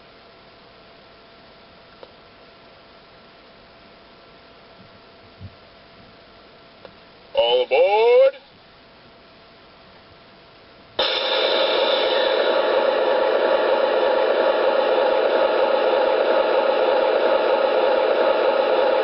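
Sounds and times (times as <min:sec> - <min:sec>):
model train hiss and hum: 0:11.0 - 0:19.0.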